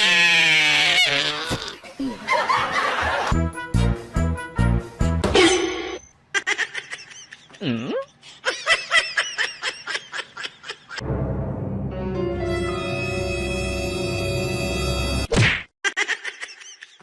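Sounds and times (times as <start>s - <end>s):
ominous music: 11.0s - 15.3s.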